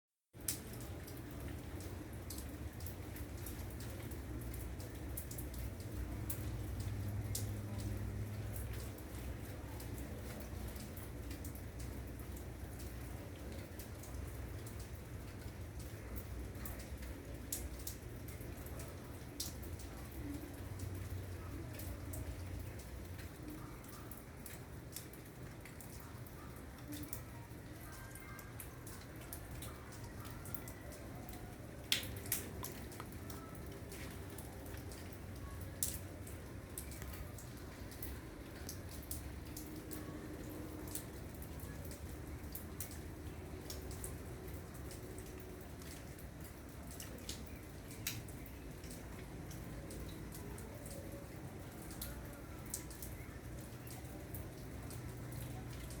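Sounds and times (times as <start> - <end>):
rain drops tapping: 0.3 - 56.0.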